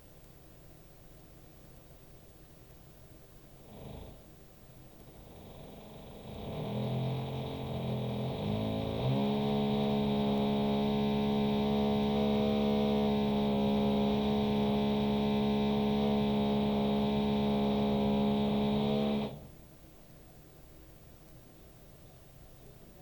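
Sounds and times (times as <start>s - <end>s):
muffled electric drill running: 5.1s - 19.5s.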